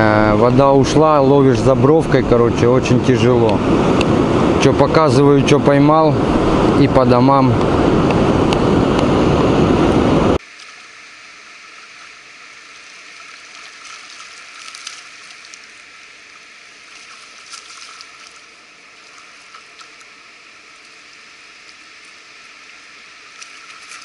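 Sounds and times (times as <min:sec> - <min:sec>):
river water trickling and gurgling: 0:10.4 - 0:24.0.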